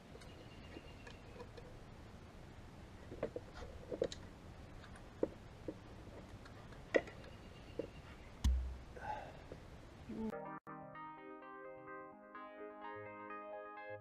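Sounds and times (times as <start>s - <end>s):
heavy low thump: 8.4s - 9.1s.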